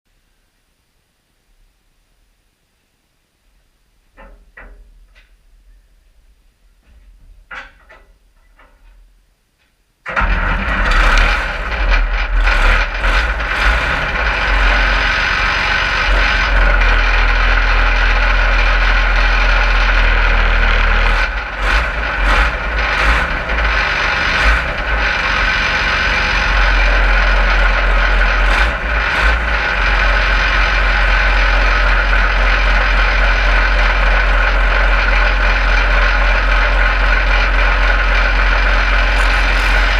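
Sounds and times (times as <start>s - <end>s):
diesel tractor engine running: 10.1s - 39.9s
engine knocks: 10.1s - 39.9s.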